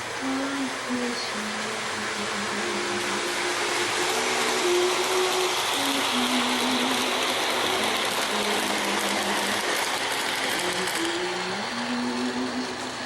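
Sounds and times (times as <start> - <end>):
model train clattering on track: 3.6 - 12.3.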